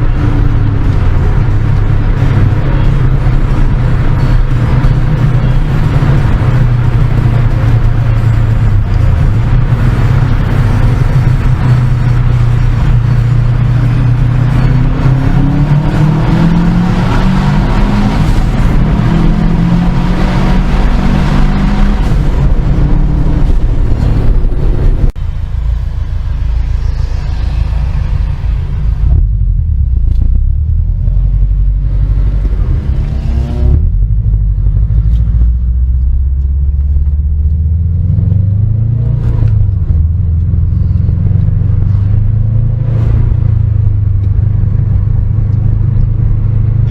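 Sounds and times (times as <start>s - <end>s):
car engine accelerating: 0.0s - 46.9s.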